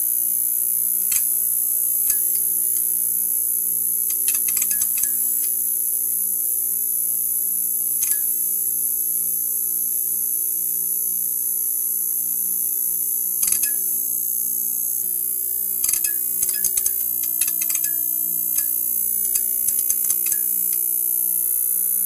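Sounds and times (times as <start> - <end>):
sharp crackling clicks: 18.6 - 20.8.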